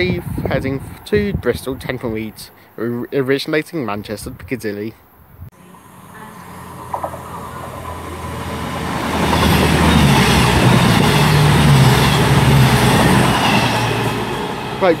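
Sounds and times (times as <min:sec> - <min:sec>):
diesel train engine drone: 0:05.5 - 0:15.0
train wheels rushing on rails: 0:05.7 - 0:15.0.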